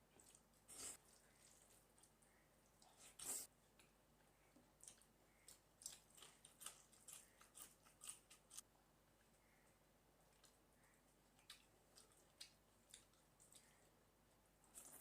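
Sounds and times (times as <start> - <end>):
chewing mouth clicks: 11.4 - 13.8.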